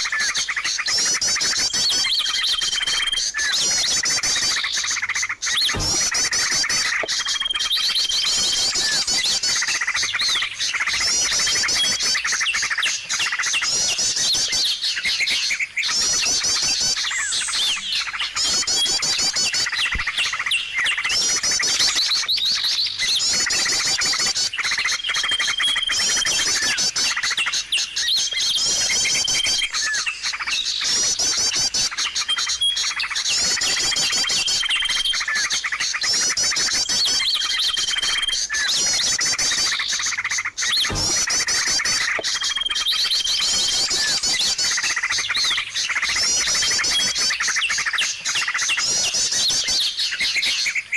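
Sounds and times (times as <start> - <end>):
songbirds chirping and trilling: 0.0 - 50.9.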